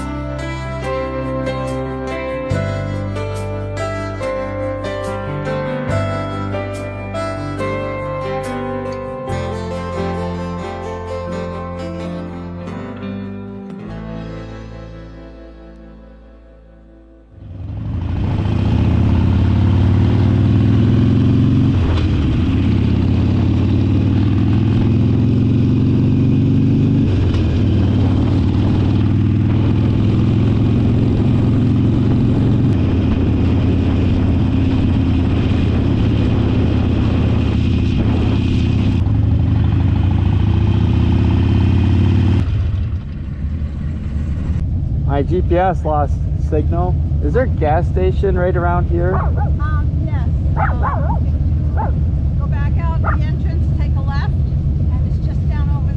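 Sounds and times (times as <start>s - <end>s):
motorcycle engine revving: 17.4s - 55.9s
wind and road noise: 17.4s - 55.9s.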